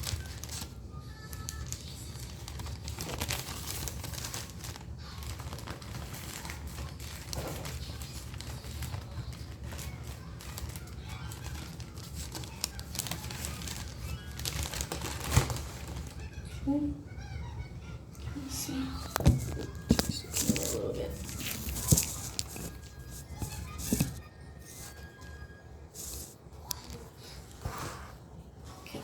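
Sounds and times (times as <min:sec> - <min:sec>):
glove wrapper crinkling: 0:01.4 - 0:16.3, 0:19.0 - 0:25.3, 0:25.9 - 0:27.0.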